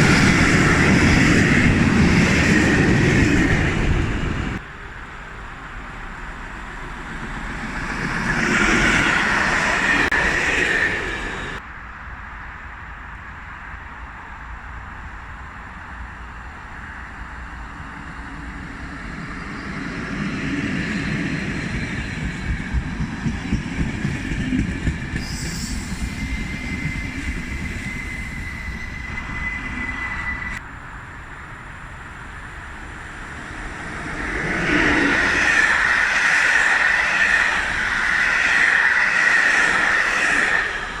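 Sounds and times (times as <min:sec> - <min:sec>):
train rumbling with wheel clatter: 0:00.0 - 0:41.0
train wheel squeal: 0:06.0 - 0:11.6, 0:17.8 - 0:30.6, 0:32.8 - 0:41.0.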